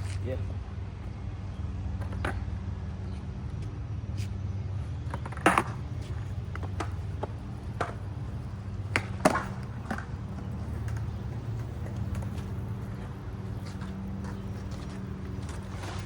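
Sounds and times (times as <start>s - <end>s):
skateboard wheels rolling: 0.0s - 16.0s
skateboard clacking: 5.1s - 16.0s.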